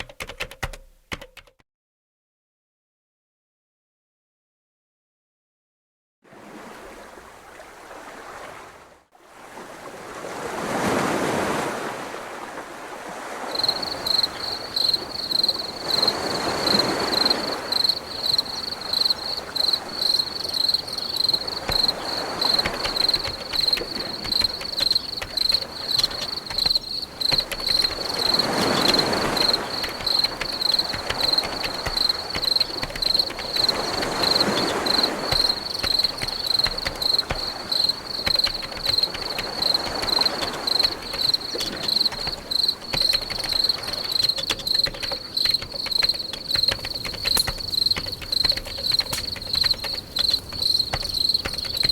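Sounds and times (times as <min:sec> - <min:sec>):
surf waves washing in: 0:06.3 - 0:51.9
high rhythmic chirping: 0:13.6 - 0:51.9.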